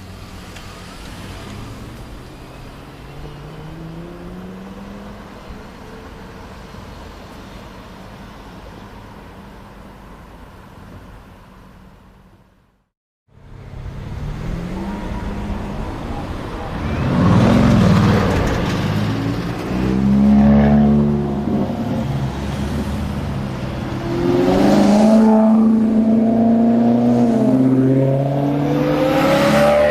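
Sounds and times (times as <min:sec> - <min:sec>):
car engine revving: 0:00.3 - 0:06.0, 0:13.5 - 0:29.9.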